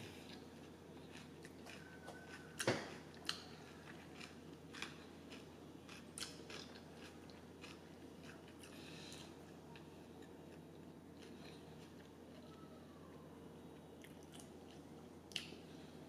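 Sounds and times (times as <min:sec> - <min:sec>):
chewing soft wrap: 0:00.1 - 0:10.6, 0:11.2 - 0:12.6.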